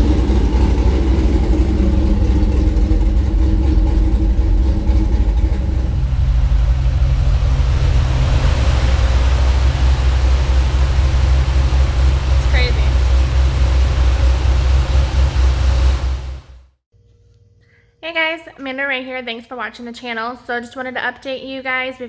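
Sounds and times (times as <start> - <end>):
loud car exhaust rumble: 0.0 - 16.8.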